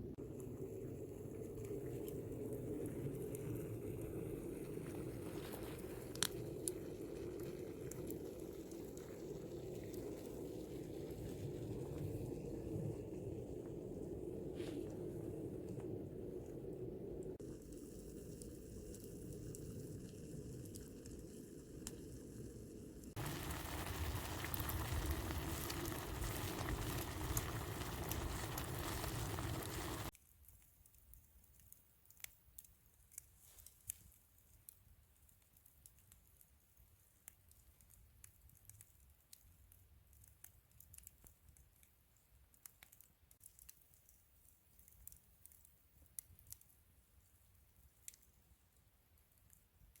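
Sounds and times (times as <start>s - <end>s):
low steady rumble: 0.0s - 30.1s
food sizzling over campfire: 0.0s - 30.2s
campfire crackles: 0.0s - 50.0s.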